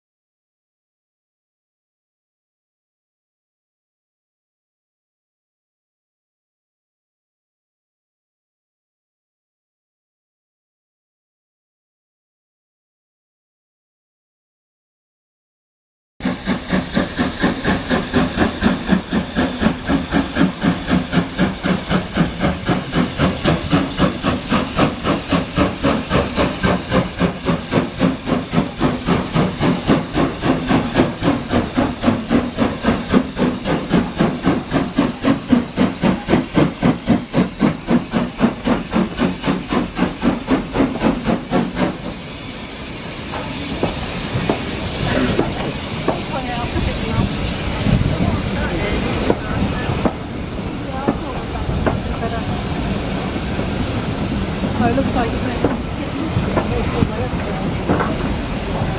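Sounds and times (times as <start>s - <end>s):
rolling noise with hiss: 16.2s - 58.9s
steam locomotive chuffing: 16.2s - 58.9s.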